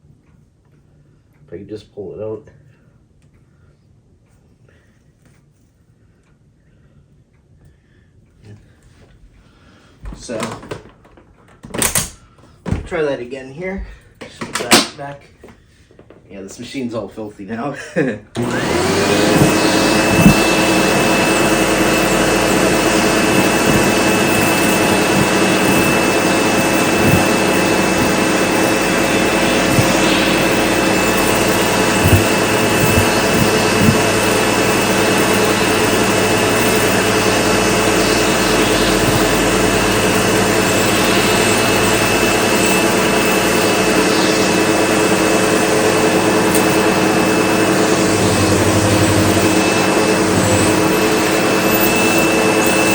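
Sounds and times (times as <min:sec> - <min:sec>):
debris clicking in vacuum: 0:18.4 - 0:43.6
vacuum cleaner motor whining: 0:18.4 - 0:52.9.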